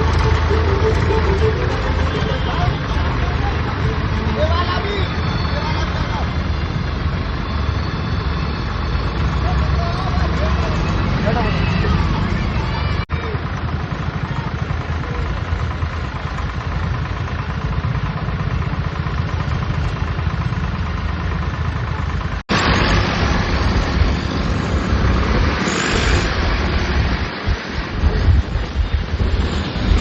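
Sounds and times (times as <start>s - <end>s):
tractor diesel engine running: 0.0s - 30.0s
rushing noise: 22.5s - 30.0s.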